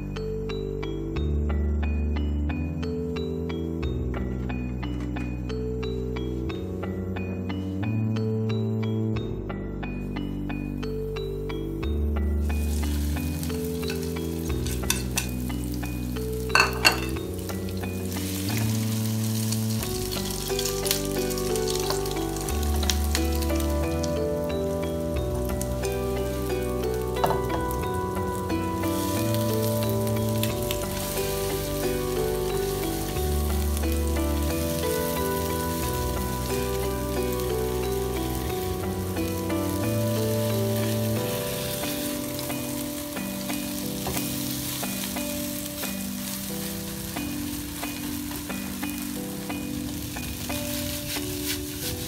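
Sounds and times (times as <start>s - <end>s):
background music of low notes: 0.0s - 52.0s
food sizzling in a wok: 12.4s - 52.0s.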